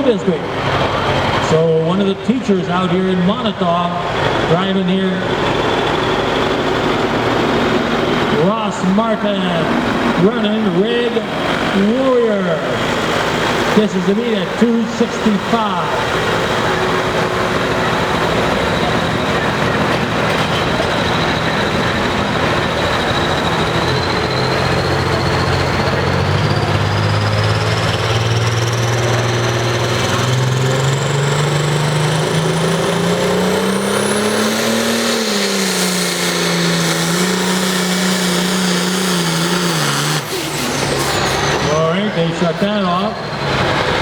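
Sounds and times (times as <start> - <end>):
announcer speaking: 0.0 - 5.5, 8.2 - 12.9, 13.6 - 20.1, 41.2 - 43.4
tractor diesel engine under load: 0.0 - 44.0
high whine: 3.3 - 44.0.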